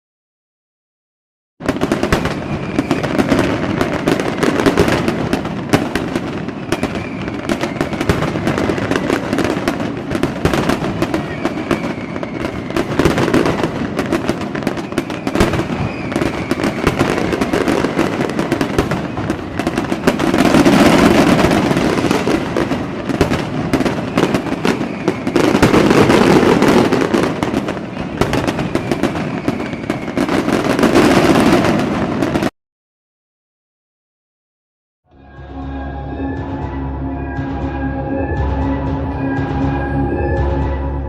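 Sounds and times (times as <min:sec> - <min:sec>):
fireworks crackling and popping: 0:01.6 - 0:32.5
rumble of fireworks bangs: 0:01.6 - 0:32.5
whistles from rising shells: 0:02.3 - 0:03.7, 0:06.6 - 0:09.6, 0:11.1 - 0:13.2, 0:14.7 - 0:18.7, 0:24.1 - 0:27.0, 0:28.5 - 0:30.5.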